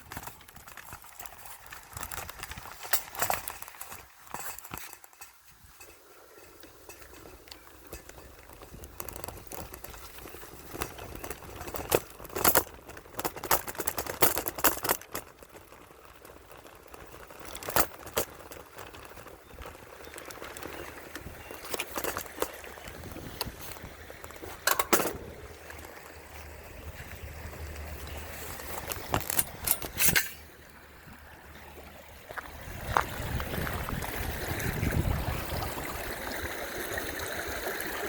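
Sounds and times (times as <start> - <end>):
water gurgling: 29.5 - 38.0.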